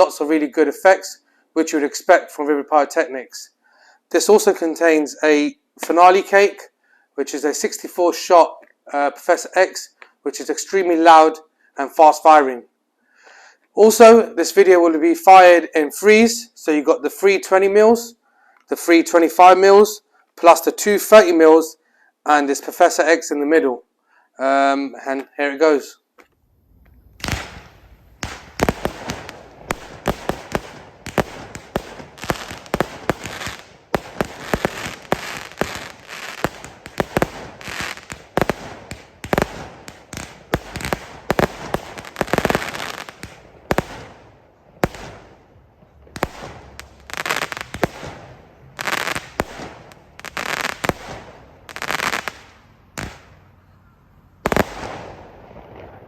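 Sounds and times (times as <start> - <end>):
fireworks launching and bursting: 27.0 - 53.4, 54.4 - 56.0.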